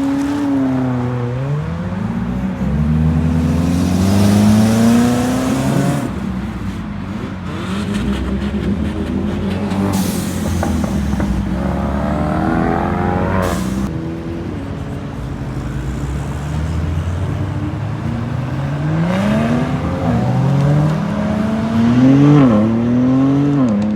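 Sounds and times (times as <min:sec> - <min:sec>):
car engines revving hard: 0:00.0 - 0:23.9.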